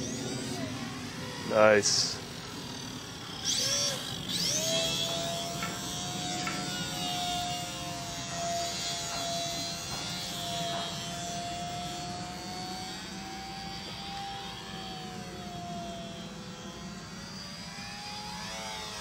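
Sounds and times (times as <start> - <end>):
electric model airplane buzzing whine: 0.0 - 19.0.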